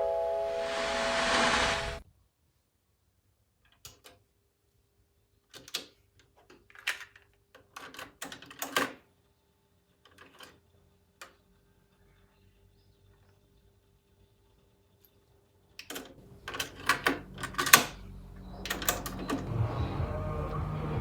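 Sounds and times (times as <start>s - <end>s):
plastic clicks and clatter: 5.5s - 9.0s, 10.0s - 10.6s.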